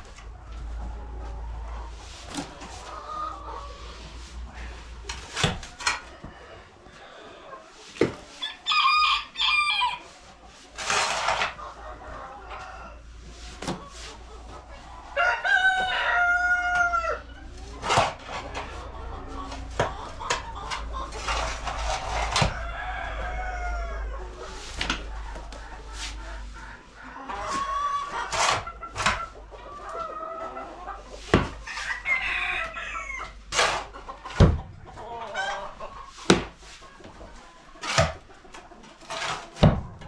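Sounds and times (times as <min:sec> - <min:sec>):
chickens clucking: 0:00.0 - 0:40.0
rooster crowing: 0:08.4 - 0:10.0, 0:15.2 - 0:17.3, 0:22.4 - 0:24.2.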